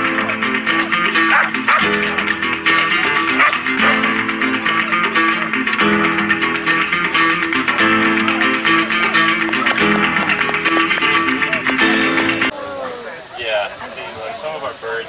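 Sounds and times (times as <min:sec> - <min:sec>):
acoustic guitar strumming: 0:00.0 - 0:12.5.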